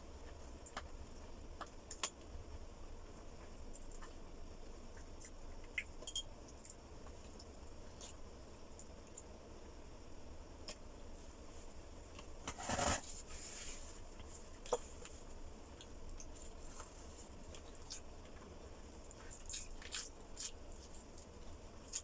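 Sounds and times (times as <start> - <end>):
quiet chewing: 14.2 - 22.0.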